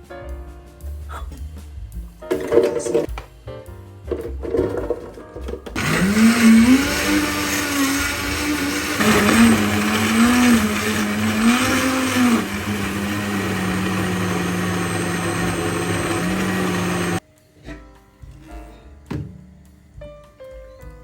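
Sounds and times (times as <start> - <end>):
electric blender running: 5.8 - 17.2.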